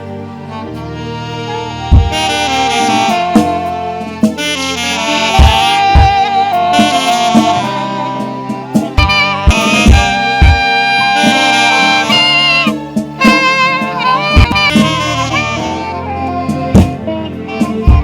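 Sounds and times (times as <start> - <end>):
saxophone melody: 0.0 - 18.0
sustained keyboard chords: 0.0 - 18.0
kick drum thumping: 5.4 - 6.2, 9.0 - 10.7, 14.4 - 14.8.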